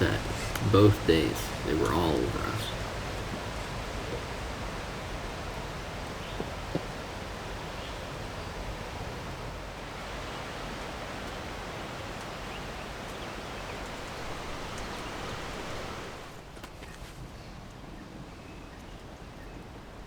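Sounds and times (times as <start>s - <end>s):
outdoor rushing noise: 0.0s - 6.7s.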